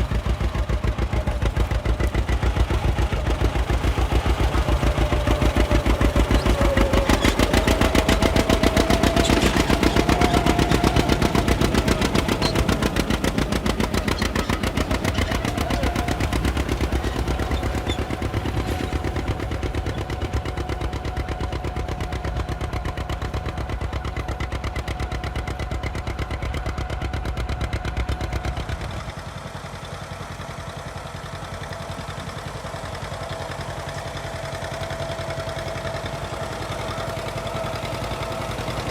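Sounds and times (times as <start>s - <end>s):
tractor engine exhaust popping: 0.0s - 20.8s.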